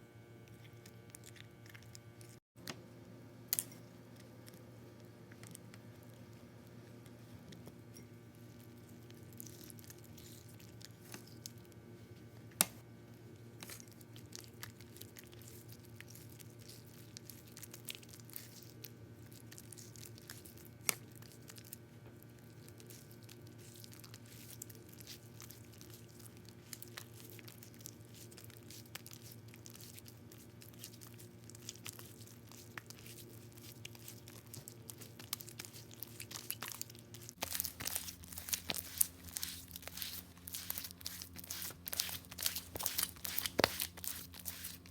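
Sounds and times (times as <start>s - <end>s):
steady low hum: 0.0s - 44.9s
sticky slime crackling: 22.4s - 44.9s.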